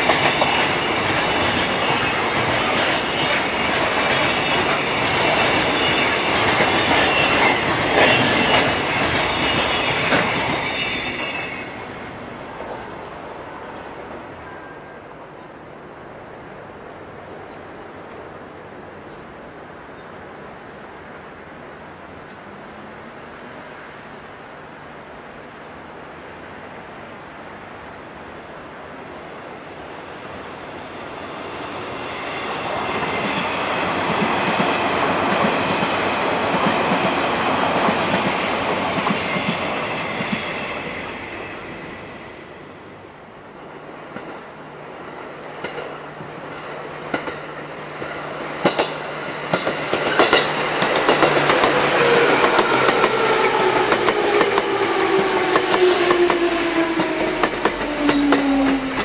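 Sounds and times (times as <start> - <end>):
train wheels clacking over joints: 0.0 - 11.7, 46.6 - 59.0
train rumble: 0.0 - 17.0, 29.5 - 59.0
train motor whine: 50.8 - 59.0.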